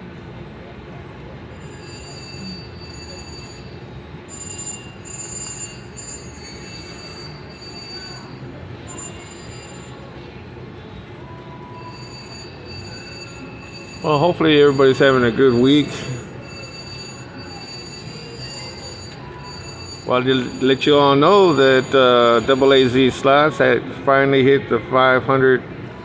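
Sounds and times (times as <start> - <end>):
casino background din: 1.0 - 25.7
slot machine electronic tones: 1.6 - 10.1, 11.6 - 23.2.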